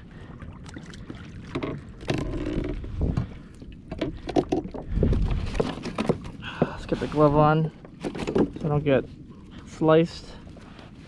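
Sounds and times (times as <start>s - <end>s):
wind gusts on microphone: 2.7s - 3.4s, 4.6s - 7.7s.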